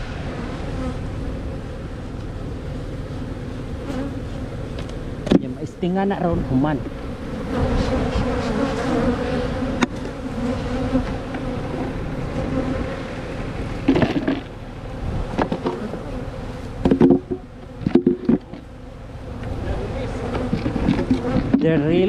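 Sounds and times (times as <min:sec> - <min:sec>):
honeybees buzzing: 0:00.0 - 0:22.0
hive boxes knocking: 0:13.8 - 0:14.6, 0:15.2 - 0:19.5, 0:20.2 - 0:22.0.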